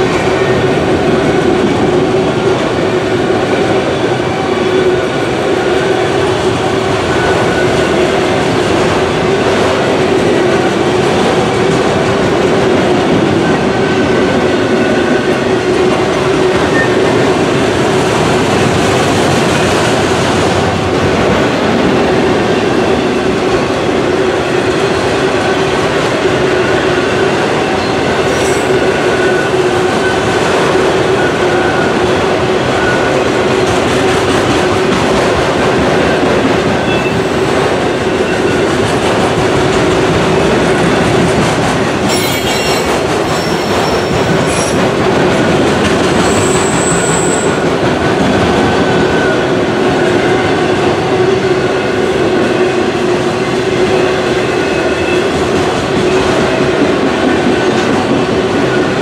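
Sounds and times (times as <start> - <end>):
freight cars rumbling on rails: 0.0 - 59.0
high wheel squeal: 27.7 - 30.3, 42.1 - 44.8, 46.2 - 47.6.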